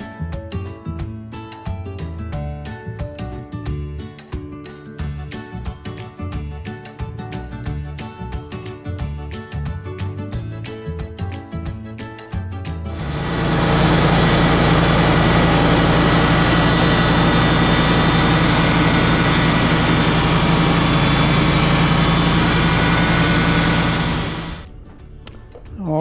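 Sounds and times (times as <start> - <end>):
band sawmill engine running: 12.9 - 24.7.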